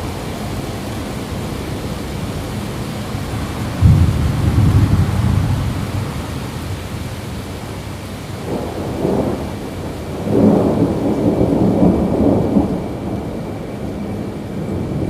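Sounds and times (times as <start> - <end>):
steady rain: 0.0 - 15.0
distant thunder rolling: 3.2 - 15.0.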